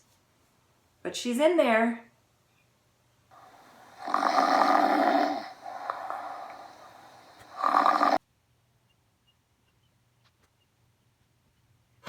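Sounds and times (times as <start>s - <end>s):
tortoise hissing: 3.4s - 8.2s.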